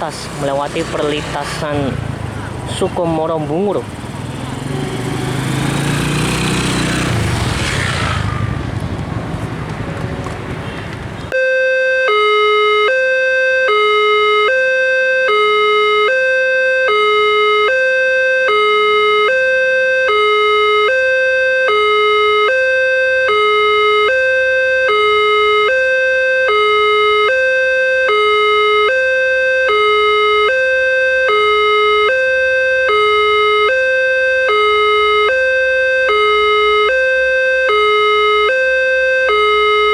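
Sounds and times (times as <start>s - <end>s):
passing train rushing: 4.0s - 11.2s
level crossing alarm two tones: 11.4s - 39.9s.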